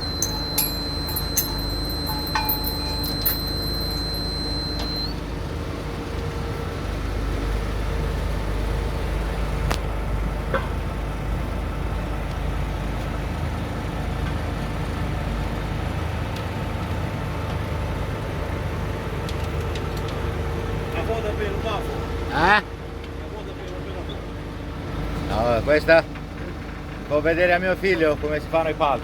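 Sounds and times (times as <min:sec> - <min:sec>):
light metal clanks: 0:00.0 - 0:05.1
diesel engine running: 0:00.0 - 0:19.7.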